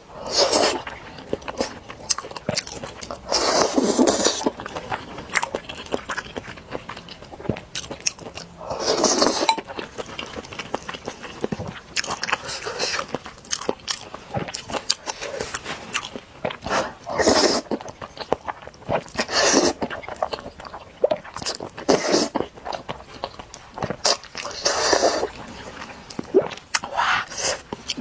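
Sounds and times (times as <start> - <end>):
loud slurping of noodles: 0.2 - 0.8, 8.7 - 9.5, 16.7 - 17.7, 19.3 - 19.8, 21.9 - 22.4, 24.5 - 25.4
wet chewing: 0.2 - 28.0.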